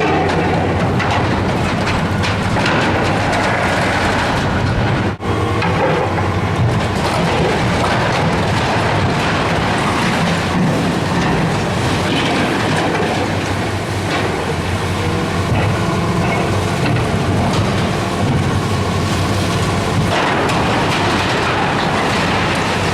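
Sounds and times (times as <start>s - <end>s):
building material crunching: 0.0s - 22.9s
diesel engine running: 0.0s - 22.9s.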